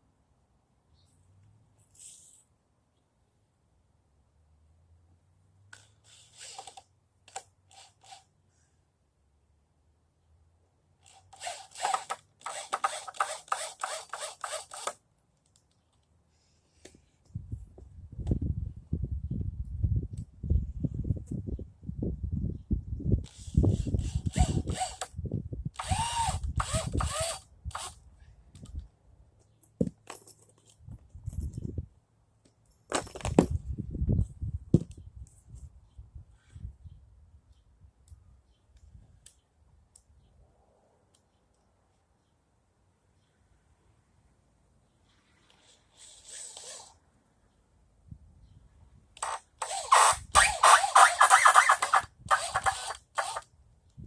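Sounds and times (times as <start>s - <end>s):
rasping strokes: 5.8s - 8.3s, 45.1s - 47.0s, 49.2s - 53.4s
metal tools clinking: 30.0s - 31.7s.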